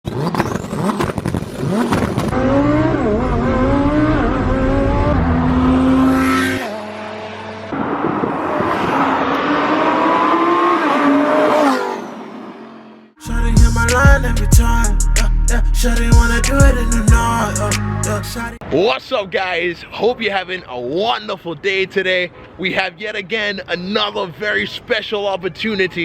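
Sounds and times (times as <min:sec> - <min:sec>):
sports car engine revving: 0:00.1 - 0:11.5.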